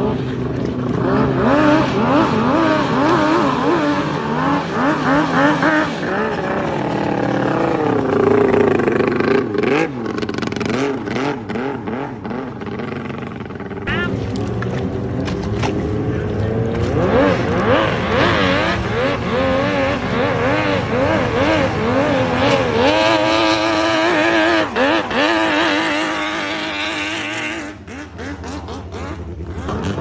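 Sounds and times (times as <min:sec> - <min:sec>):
two-stroke boat engine revving: 0:00.0 - 0:30.0.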